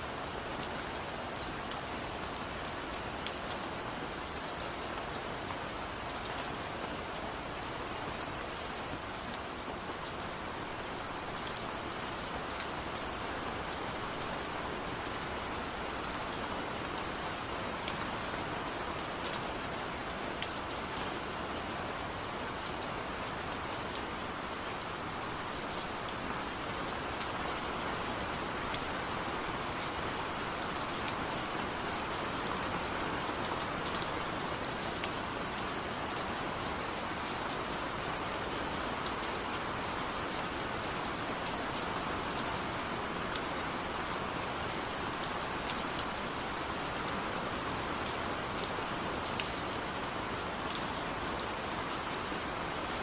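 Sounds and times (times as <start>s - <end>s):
rain falling: 0.0s - 53.0s.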